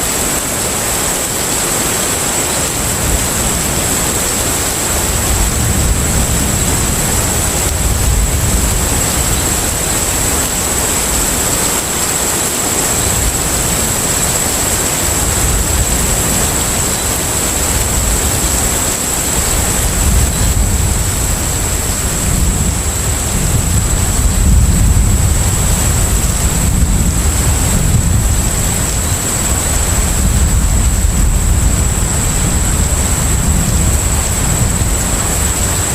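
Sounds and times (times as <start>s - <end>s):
water and wind wash: 0.0s - 35.9s
deep engine rumble: 19.8s - 35.8s.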